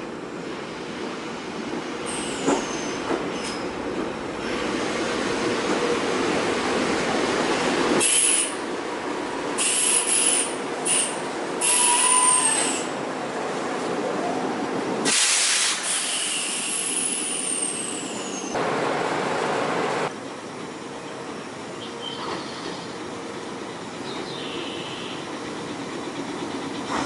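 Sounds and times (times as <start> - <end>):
electric train stopping: 9.6 - 13.0
brake air hisses: 15.0 - 17.9.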